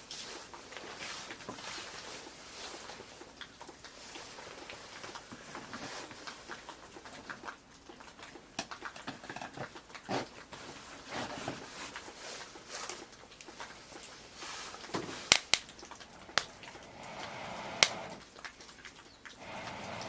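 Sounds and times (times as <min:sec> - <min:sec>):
log fire hissing and crackling: 0:00.0 - 0:06.8, 0:10.0 - 0:20.0.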